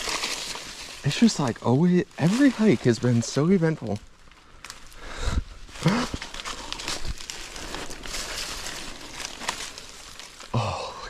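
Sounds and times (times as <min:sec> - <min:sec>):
leaves crackling underfoot: 0:00.0 - 0:11.0
person grunting: 0:05.8 - 0:06.3.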